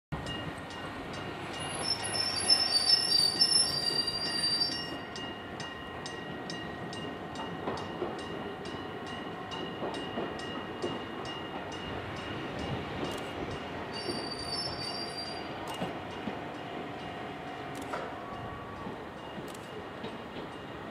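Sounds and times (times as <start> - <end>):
train running rumble: 0.2 - 20.9
train wheels squealing: 1.1 - 5.4, 12.3 - 15.9.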